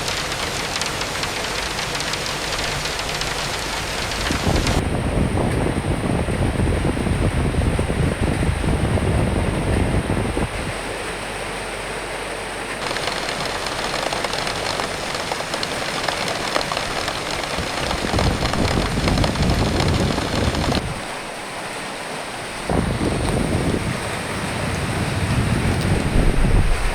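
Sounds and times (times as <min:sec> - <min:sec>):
rain hiss: 0:00.0 - 0:04.8, 0:12.8 - 0:26.9
gusty low wind rumble: 0:04.3 - 0:10.7, 0:22.7 - 0:26.9.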